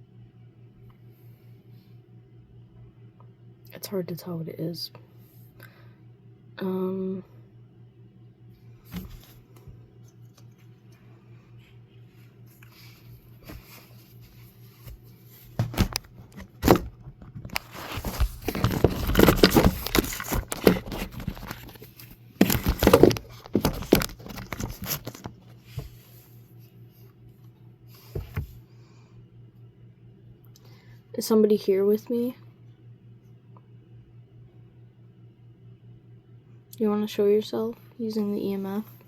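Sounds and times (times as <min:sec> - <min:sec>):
faint low hum: 0:00.0 - 0:39.0
rustling and crinkling: 0:08.8 - 0:26.7.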